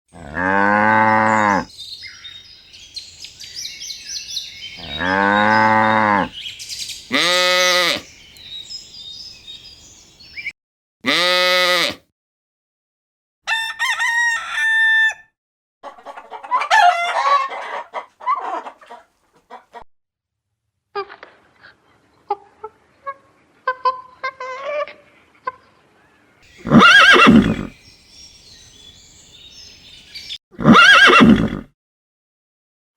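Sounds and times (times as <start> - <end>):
chickens calling: 1.1 - 6.5, 15.8 - 19.8, 26.5 - 27.8
chickens clucking: 15.8 - 19.8.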